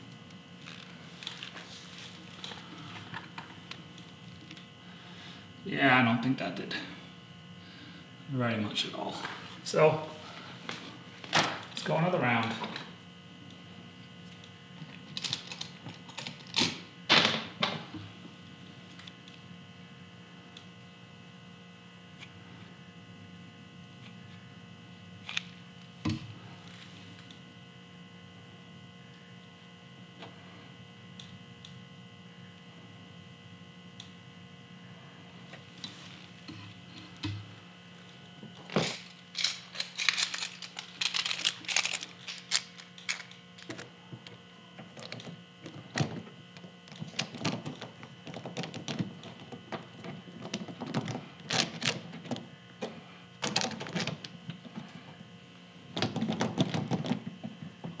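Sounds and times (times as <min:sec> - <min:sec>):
electrical hum: 0:00.0 - 0:58.0
tools clicking and knocking: 0:38.7 - 0:43.8.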